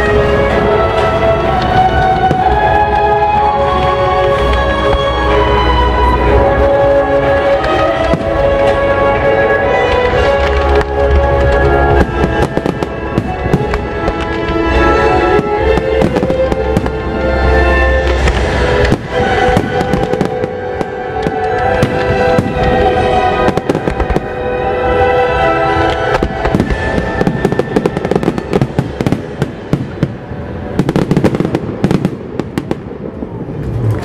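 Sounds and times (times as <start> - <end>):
loud music: 0.0 - 32.0
fireworks popping and crackling: 6.3 - 24.4, 25.7 - 34.0.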